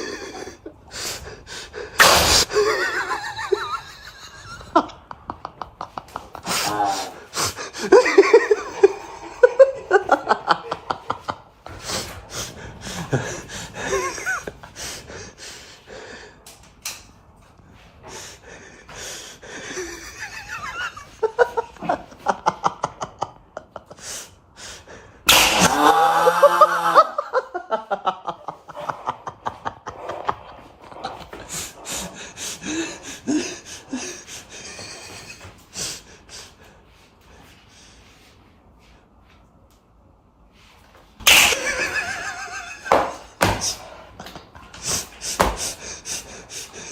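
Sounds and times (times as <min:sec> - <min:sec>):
people laughing: 0:02.4 - 0:15.1, 0:19.4 - 0:24.0, 0:25.6 - 0:35.6, 0:41.5 - 0:45.0
loud pitched cry: 0:25.3 - 0:27.0.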